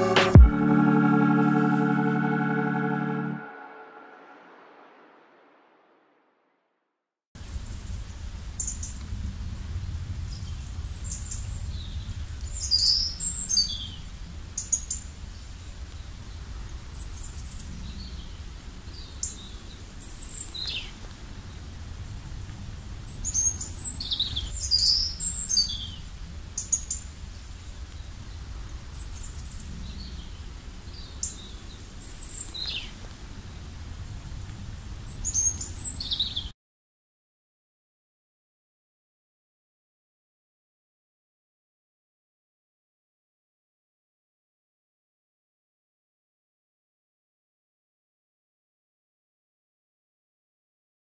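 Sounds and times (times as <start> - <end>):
songbirds chirping: 7.7 - 33.9, 34.8 - 36.5.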